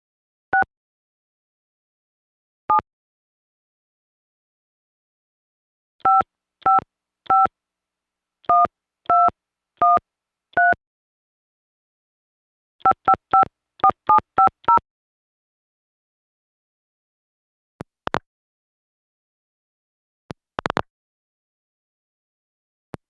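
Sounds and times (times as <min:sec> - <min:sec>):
telephone keypad beeps: 0:06.0 - 0:07.5, 0:08.5 - 0:10.0, 0:10.6 - 0:10.8, 0:12.9 - 0:14.8.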